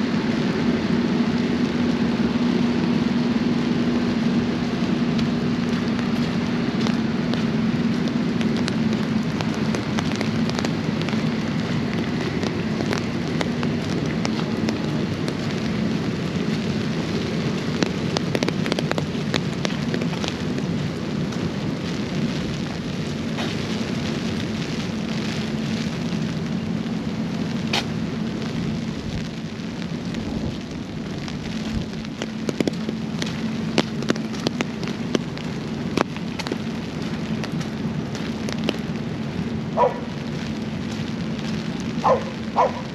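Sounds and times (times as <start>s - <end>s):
raindrops tapping close by: 0.0s - 42.9s
steady rain falling: 0.0s - 42.9s.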